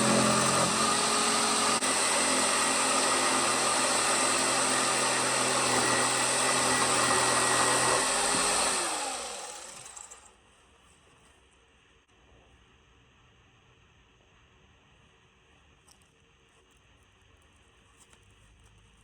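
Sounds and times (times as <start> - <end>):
multi-tool sanding wood: 0.0 - 10.0
motor winding down: 0.0 - 10.3.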